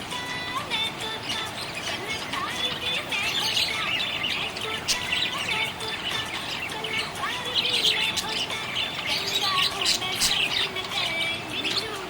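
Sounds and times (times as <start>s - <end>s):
budgerigars chirping: 1.1s - 12.0s.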